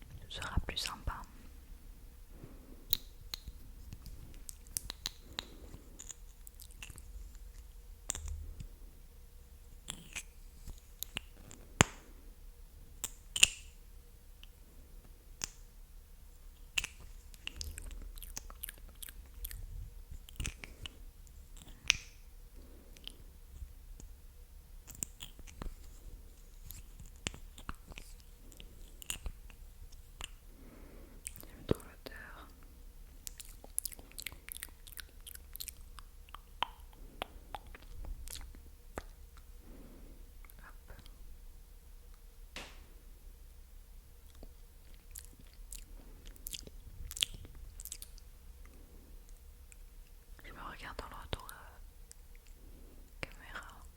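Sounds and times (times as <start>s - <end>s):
wet mouth clicks and pops: 2.9s - 8.4s, 9.8s - 12.0s, 13.0s - 13.8s, 16.6s - 22.2s, 26.7s - 30.4s, 33.2s - 39.5s, 44.3s - 48.2s.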